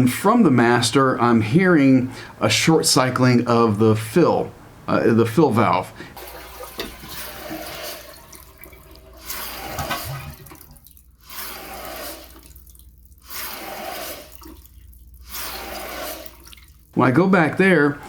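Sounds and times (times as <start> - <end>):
water hissing into toilet tank: 5.7 - 17.0.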